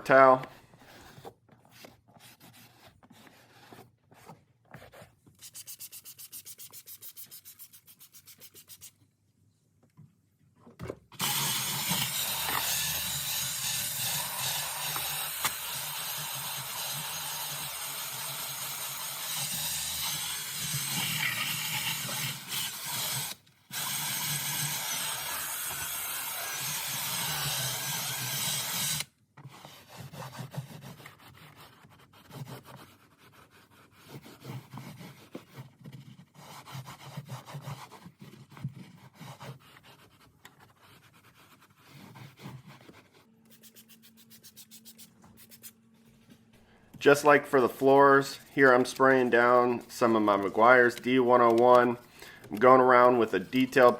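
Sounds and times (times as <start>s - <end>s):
drill brush whirring: 11.2s - 29.1s.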